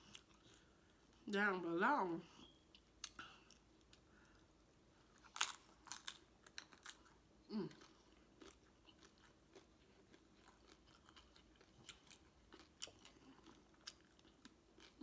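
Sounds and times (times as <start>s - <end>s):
chewing with wet mouth clicks: 7.8s - 15.0s.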